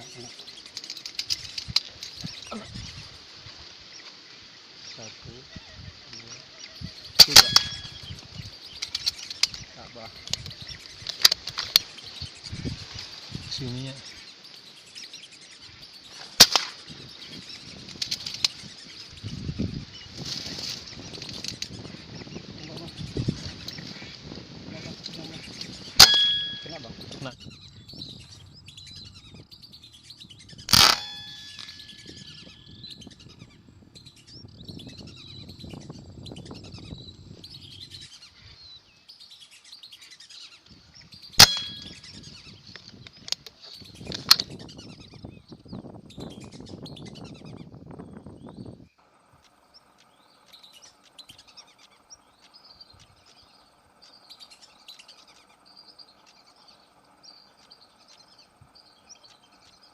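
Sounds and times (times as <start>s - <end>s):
birds chirping: 0.0s - 59.9s
gunshot cracks: 7.2s - 7.9s, 16.4s - 16.8s, 30.7s - 31.6s, 41.4s - 42.0s.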